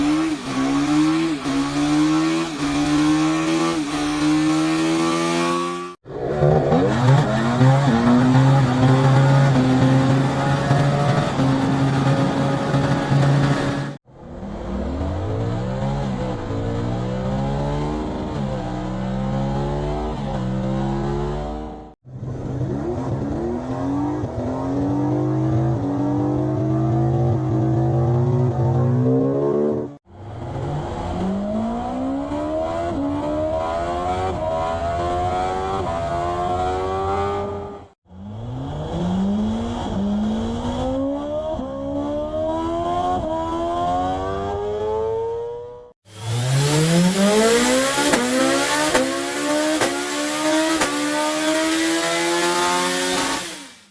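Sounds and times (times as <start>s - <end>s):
motorcycles accelerating through gears: 0.0s - 53.9s.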